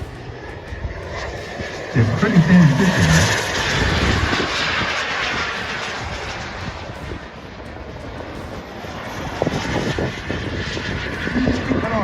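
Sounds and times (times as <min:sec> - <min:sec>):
model jet roar: 0:00.0 - 0:12.0.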